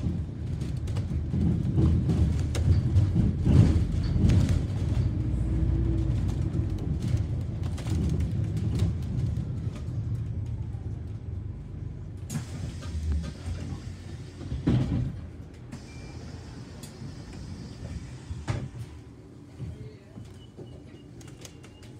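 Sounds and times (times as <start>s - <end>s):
bodywork rattling and knocking: 0.0s - 9.5s
bus engine and road rumble: 0.0s - 21.9s.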